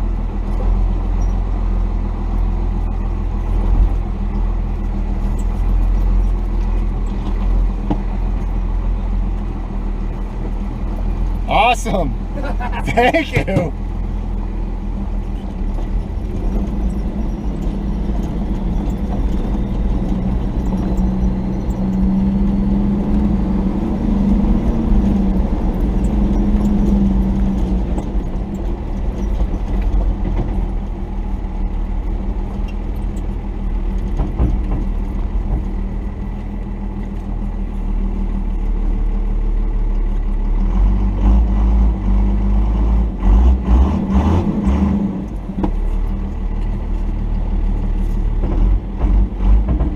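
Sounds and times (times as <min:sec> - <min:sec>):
diesel engine running: 0:00.0 - 0:49.9
truck knocks and bumps: 0:24.4 - 0:36.3, 0:48.2 - 0:49.9.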